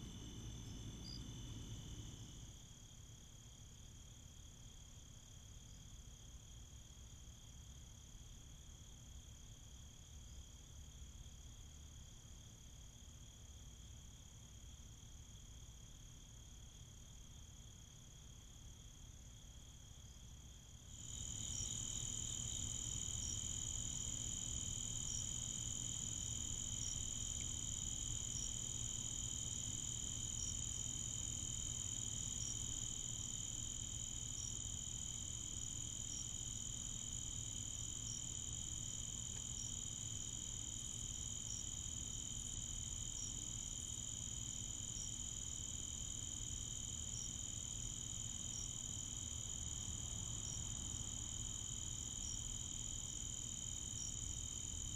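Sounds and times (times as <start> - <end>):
crickets trilling: 0.0 - 2.6, 20.9 - 54.9
low steady hum: 0.0 - 3.0.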